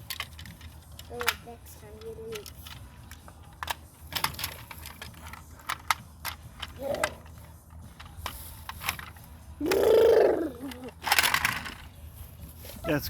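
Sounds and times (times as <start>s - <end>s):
plastic toys clicking: 0.0s - 11.9s
child's voice: 1.0s - 2.6s, 6.8s - 7.2s, 9.6s - 10.9s.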